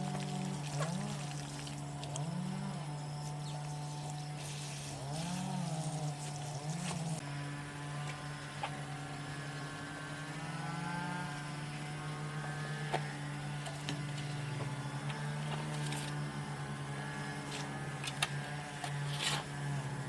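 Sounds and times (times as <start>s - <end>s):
small motor humming: 0.0s - 20.0s.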